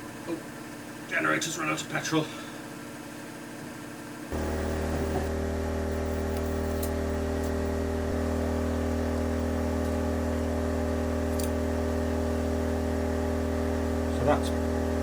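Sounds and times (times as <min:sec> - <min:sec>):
petrol generator running: 0:04.0 - 0:15.0.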